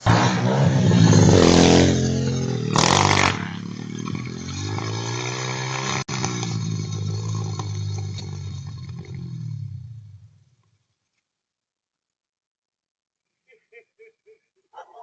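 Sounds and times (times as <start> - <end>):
loud scraping clatter: 0.0 - 9.9
dirt bike engine revving: 0.0 - 10.4.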